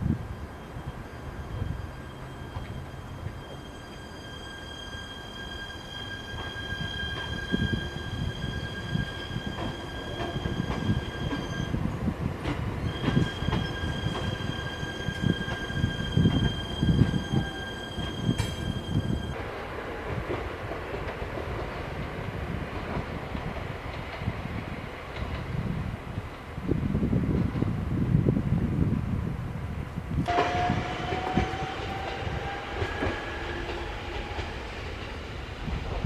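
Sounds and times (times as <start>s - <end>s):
low train rumble: 0.0s - 36.0s
train wheels squealing: 0.2s - 11.9s, 12.6s - 19.4s, 30.3s - 35.2s.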